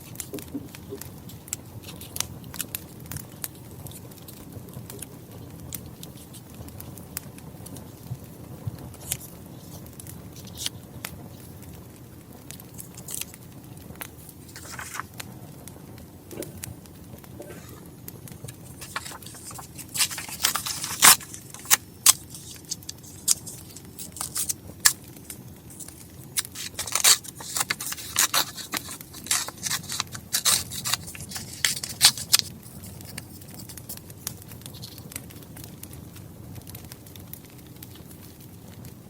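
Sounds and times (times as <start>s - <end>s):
wood fire crackling: 0.0s - 39.0s
paper and stationery handling: 1.8s - 2.3s, 12.8s - 13.3s, 14.4s - 15.2s, 17.4s - 35.0s.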